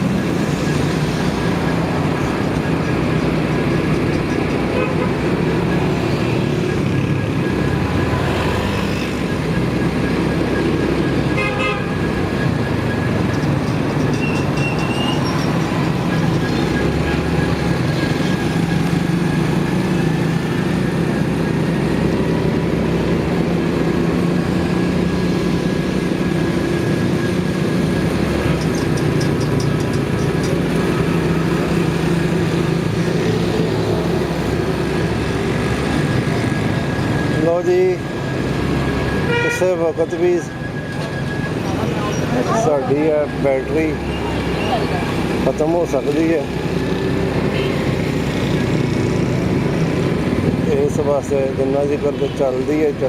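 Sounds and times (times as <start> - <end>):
street traffic noise: 0.0 - 53.0
vehicle horn toot: 11.4 - 11.9, 39.3 - 39.8.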